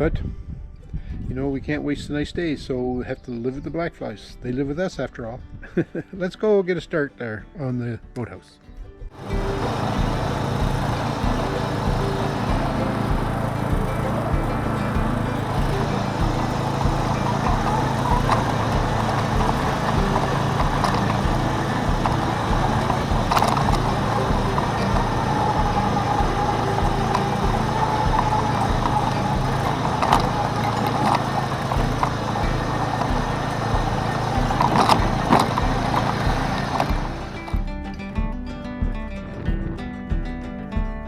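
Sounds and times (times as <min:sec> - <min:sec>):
vehicle engine running: 0:09.2 - 0:40.4
sharp knocks and clatter: 0:09.2 - 0:41.0.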